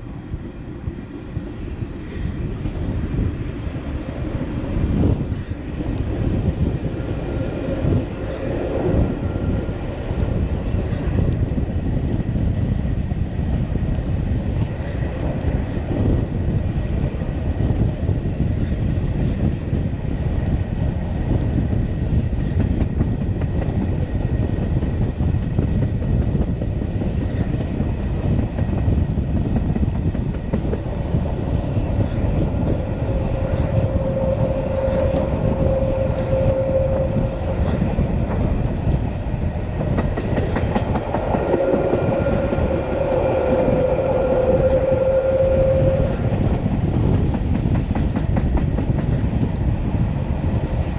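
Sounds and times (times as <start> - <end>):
train rumbling: 0.0 - 50.9
steady whine: 31.8 - 46.9.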